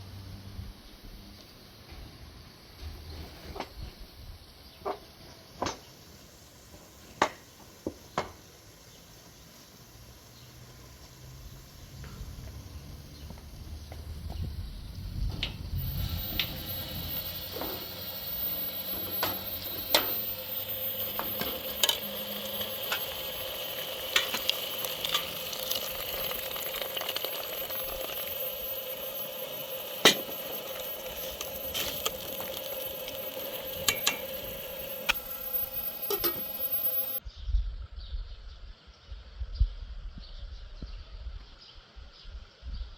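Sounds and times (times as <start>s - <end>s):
food sizzling in a pot: 5.8s - 37.2s.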